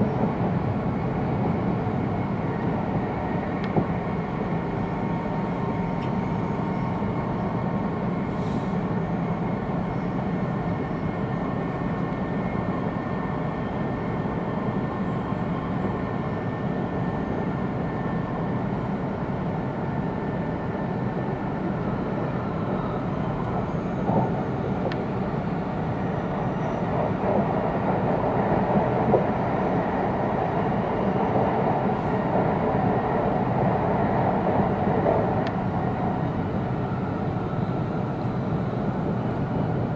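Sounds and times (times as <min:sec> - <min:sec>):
faint steady whines: 0:00.0 - 0:39.9
train rumble and hiss: 0:00.0 - 0:39.9.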